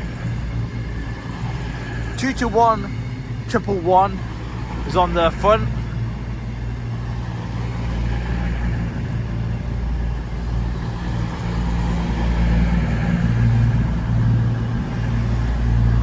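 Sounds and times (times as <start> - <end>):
train diesel engines running: 0.0 - 16.0.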